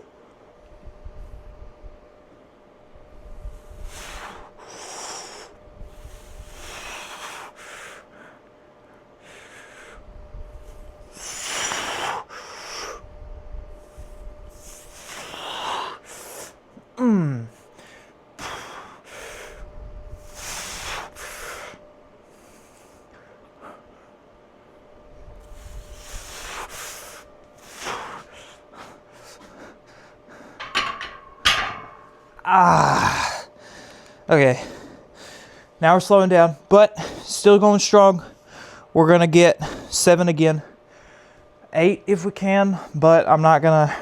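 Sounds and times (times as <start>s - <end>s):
man breathing hard: 3.4s - 13.1s, 13.8s - 16.6s, 17.4s - 24.2s, 25.4s - 35.8s, 37.0s - 37.3s, 38.2s - 38.9s, 40.6s - 41.5s
man groaning: 17.0s - 17.6s, 32.4s - 33.5s.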